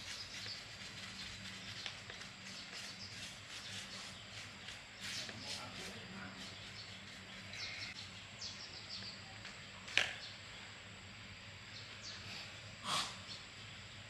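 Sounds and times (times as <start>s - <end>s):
birds chirping: 0.0s - 10.8s.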